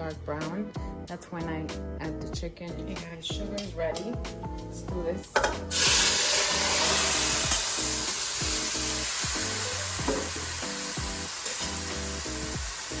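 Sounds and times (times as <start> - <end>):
background music with steady beat: 0.0 - 13.0
chicken sizzling in hot oil: 5.7 - 13.0.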